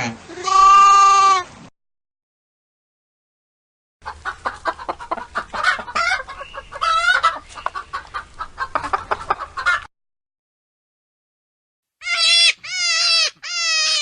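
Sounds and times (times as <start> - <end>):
chickens clucking: 4.0 - 9.9.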